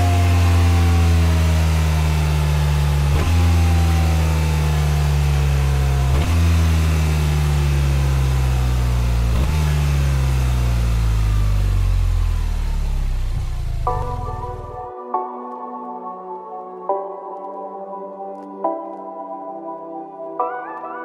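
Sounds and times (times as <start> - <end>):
motorcycle engine running loud: 0.0 - 14.8.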